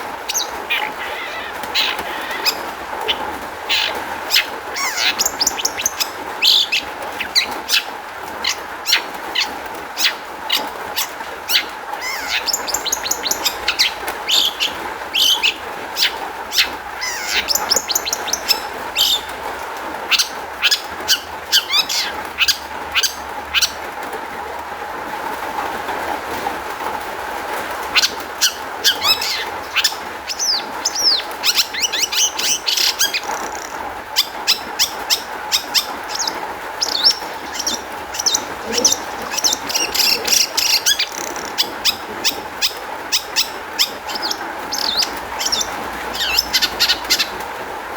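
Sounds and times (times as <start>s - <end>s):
bird singing sharp chirps: 11.5s - 19.3s, 28.0s - 47.3s.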